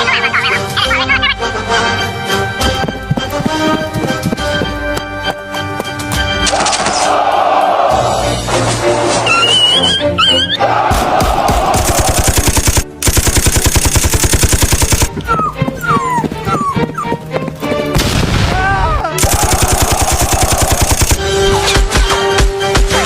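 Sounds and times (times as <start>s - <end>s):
music track: 0.0s - 6.6s
dog yelping and whimpering: 9.3s - 10.6s, 15.3s - 17.2s
machine-gun fire: 10.9s - 15.1s, 19.2s - 21.2s.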